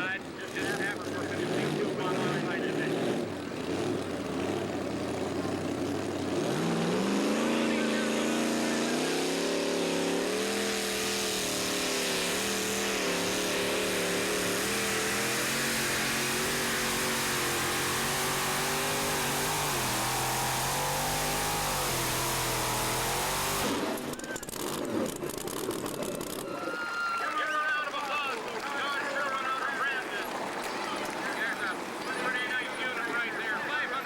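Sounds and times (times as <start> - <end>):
tractor engine at full throttle: 0.0 - 26.6.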